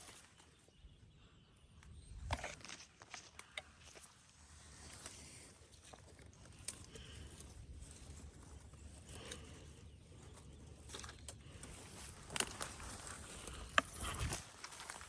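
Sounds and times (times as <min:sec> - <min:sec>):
footsteps crunching through dry leaves: 0:11.7 - 0:15.0
wind rumble on microphone: 0:13.9 - 0:14.5.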